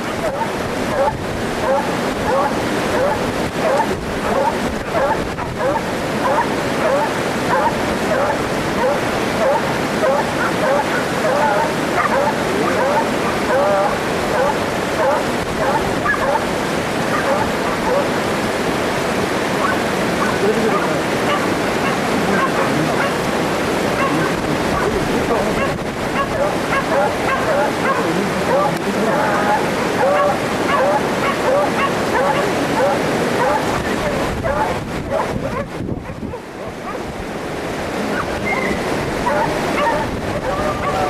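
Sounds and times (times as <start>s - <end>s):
dogs barking and yipping: 0.0s - 18.2s, 19.5s - 23.2s, 23.9s - 37.1s, 38.1s - 41.0s
steady rushing noise: 0.0s - 41.0s
wind on microphone: 0.0s - 41.0s.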